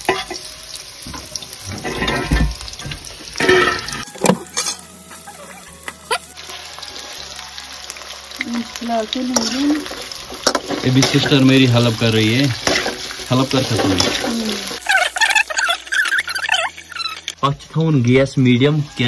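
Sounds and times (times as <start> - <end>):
food sizzling in hot oil: 0.0 - 19.0
metal spoon scraping a pan: 1.7 - 2.5, 3.3 - 4.9, 9.3 - 17.4.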